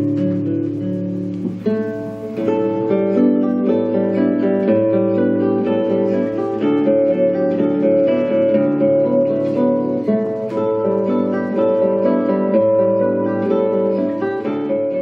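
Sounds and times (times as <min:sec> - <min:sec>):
plucked-string lullaby melody: 0:01.4 - 0:15.0.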